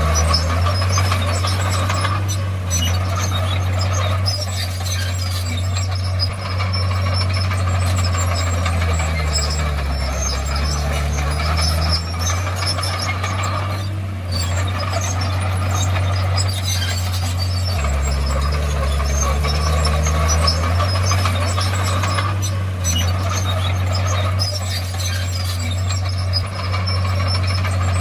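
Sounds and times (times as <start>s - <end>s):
bulldozer diesel engine running: 0.0s - 28.0s
high-pitched clatter and squeaks: 0.0s - 28.0s.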